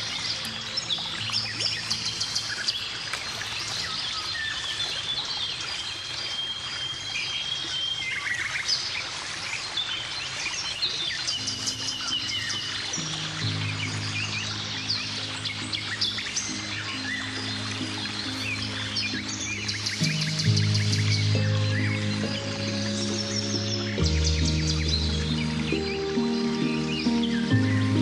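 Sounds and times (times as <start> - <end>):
soft background music: 0.0 - 5.0, 11.2 - 28.0
songbirds chirping and trilling: 0.0 - 28.0.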